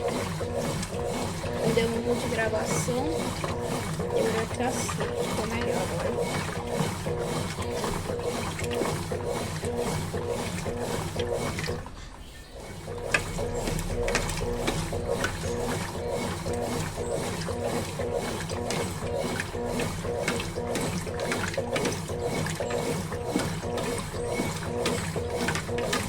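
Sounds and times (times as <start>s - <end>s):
washing machine motor whirring: 0.0s - 26.0s.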